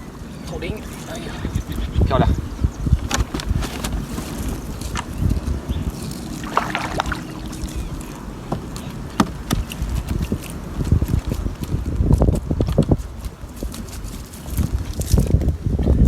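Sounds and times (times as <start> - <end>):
water sloshing against boat hull: 5.8 - 9.7.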